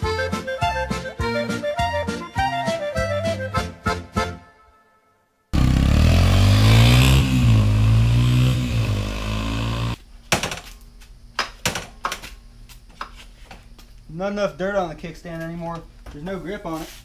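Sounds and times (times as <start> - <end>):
dirt bike engine revving: 5.6 - 10.0.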